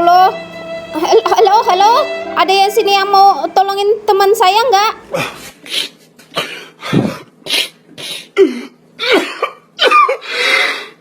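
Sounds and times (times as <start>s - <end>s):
person coughing: 6.4s - 10.6s.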